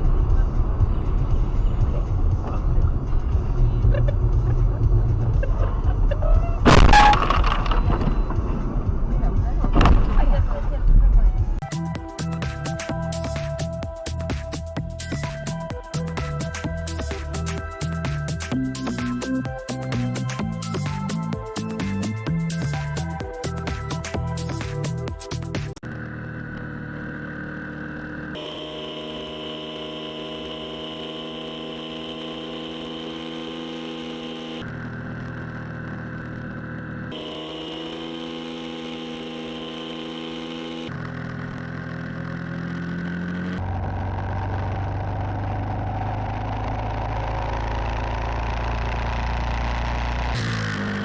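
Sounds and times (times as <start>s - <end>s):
vehicle engines humming: 0.0s - 51.0s
deep loud engine drone: 25.8s - 51.0s.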